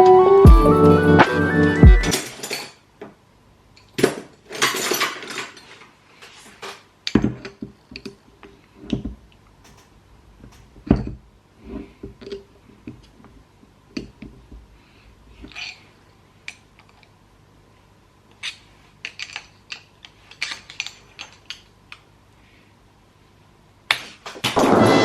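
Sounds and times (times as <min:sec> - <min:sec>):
background music: 0:00.0 - 0:02.2
screwdriver clinking and scraping metal: 0:09.7 - 0:10.7.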